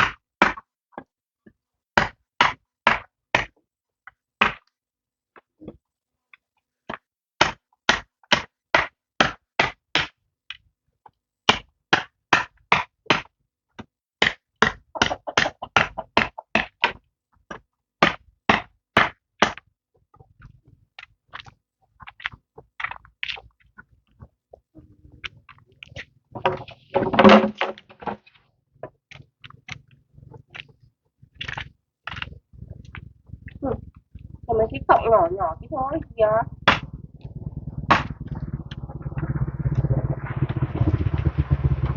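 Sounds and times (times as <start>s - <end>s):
loud clattering: 26.4s - 28.3s.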